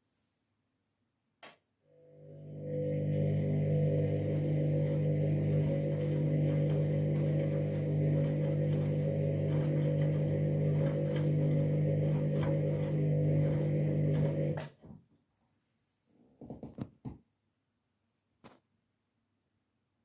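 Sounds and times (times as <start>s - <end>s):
washing machine humming: 2.0s - 14.8s.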